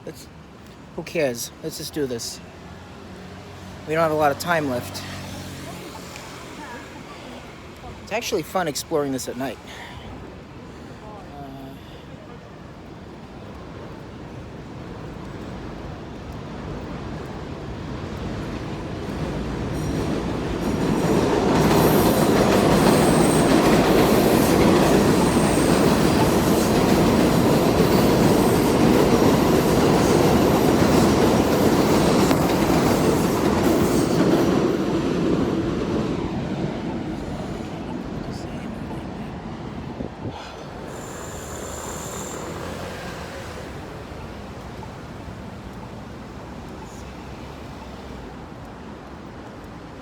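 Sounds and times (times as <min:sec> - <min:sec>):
train rumble: 0:12.6 - 0:50.0
wheels rattling on rails: 0:12.7 - 0:50.0
faint high wheel squeal: 0:40.8 - 0:43.8.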